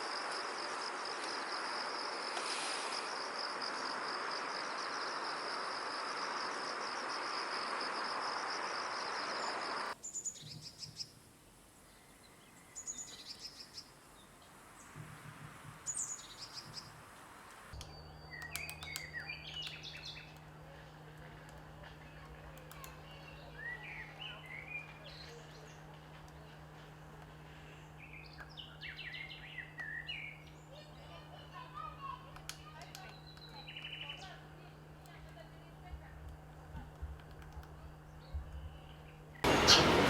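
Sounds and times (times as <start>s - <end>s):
pulsing insect trill: 0.0s - 10.0s
low steady hum: 9.2s - 40.0s.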